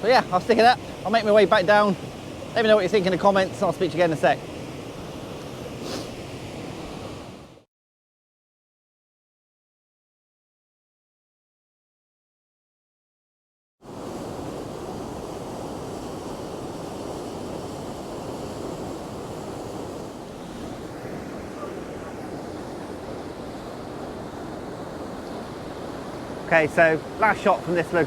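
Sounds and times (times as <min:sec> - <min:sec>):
waterfall rushing: 0:20.2 - 0:28.0.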